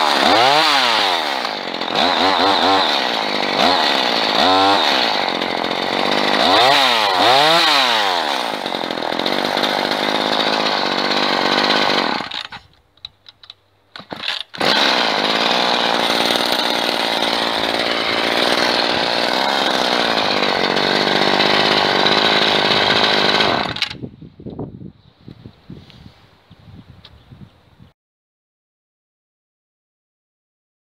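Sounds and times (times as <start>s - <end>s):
small engine revving: 0.0s - 12.6s, 14.6s - 24.0s.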